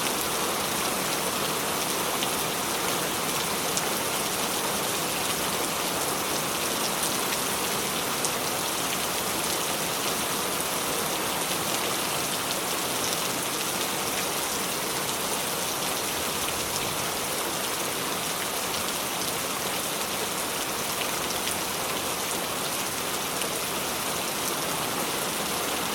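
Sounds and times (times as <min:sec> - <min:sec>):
rain falling: 0:00.0 - 0:25.9.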